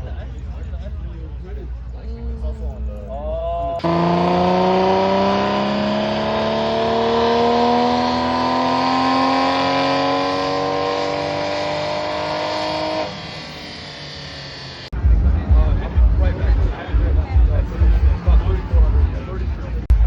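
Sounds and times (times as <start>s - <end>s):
engine accelerating: 3.8s - 20.0s.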